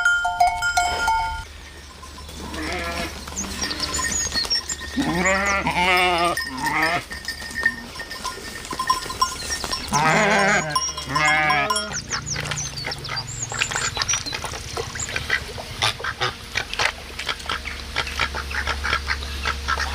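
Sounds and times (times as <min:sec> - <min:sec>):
goats bleating: 0:02.4 - 0:04.3, 0:05.0 - 0:07.9, 0:09.8 - 0:12.8.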